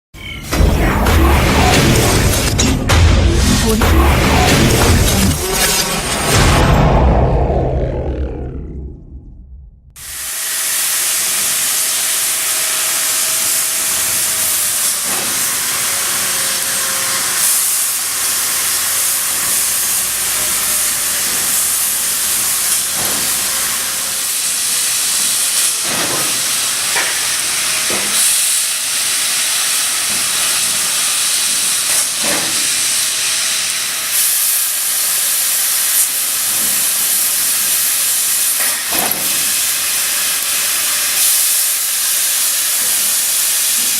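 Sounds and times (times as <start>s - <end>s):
laser cutter gas hiss: 10.0s - 43.9s.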